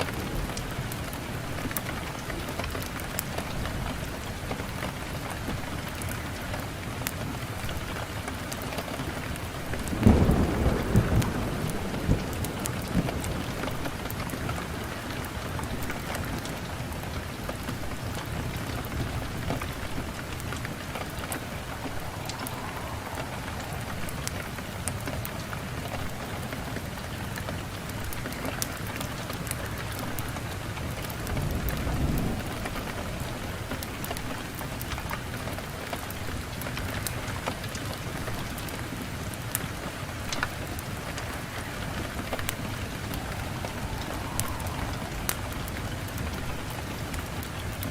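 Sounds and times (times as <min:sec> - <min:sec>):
wood fire crackling: 0:00.0 - 0:47.9
low rumble: 0:20.0 - 0:25.8, 0:41.2 - 0:47.6.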